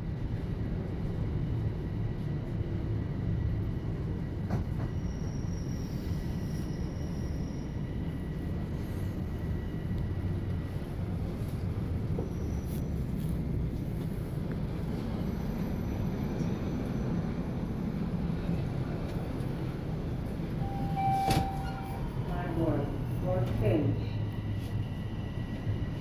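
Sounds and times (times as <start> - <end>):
subway train rumble: 0.0 - 26.0
brief high squeal: 20.6 - 22.0.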